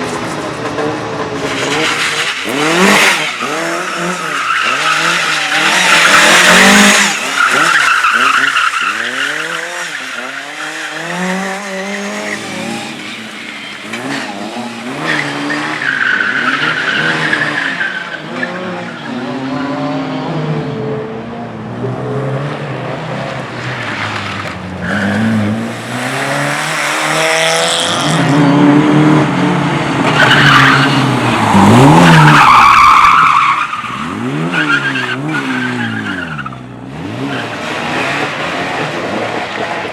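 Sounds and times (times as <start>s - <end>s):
race car engine revving: 0.0s - 39.9s
tyres squealing: 1.4s - 18.6s, 30.1s - 36.5s.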